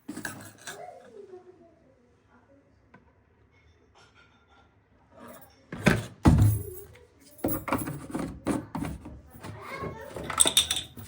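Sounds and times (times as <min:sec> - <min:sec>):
household objects clattering: 0:00.0 - 0:00.9, 0:05.3 - 0:11.0.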